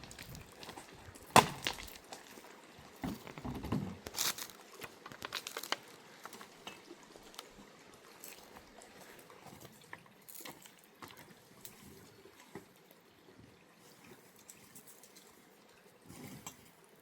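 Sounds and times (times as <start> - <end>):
wood snapping and crackling: 0.0 - 2.3, 3.2 - 6.5.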